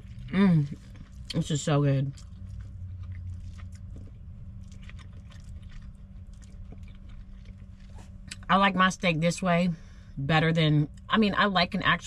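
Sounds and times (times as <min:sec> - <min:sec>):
person chewing food: 0:00.0 - 0:01.4, 0:02.0 - 0:08.4
steady low hum: 0:00.0 - 0:12.0.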